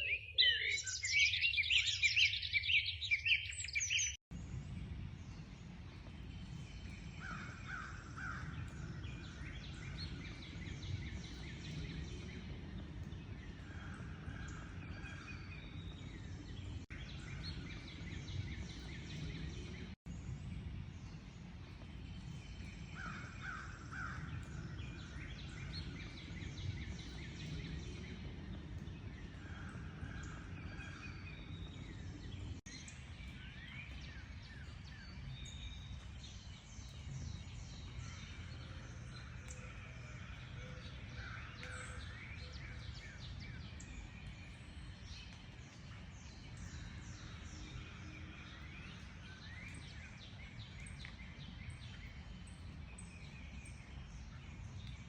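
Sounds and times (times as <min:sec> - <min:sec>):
birds chirping and trilling: 0:00.0 - 0:55.0
low rumble: 0:04.3 - 0:33.5.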